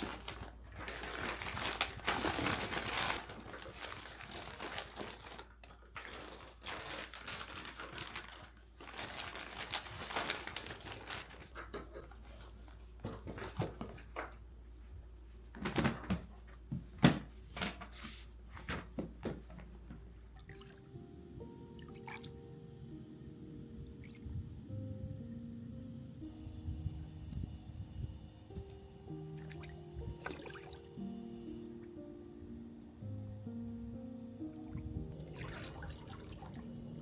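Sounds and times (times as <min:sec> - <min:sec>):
rustling and crinkling: 0:00.0 - 0:20.4.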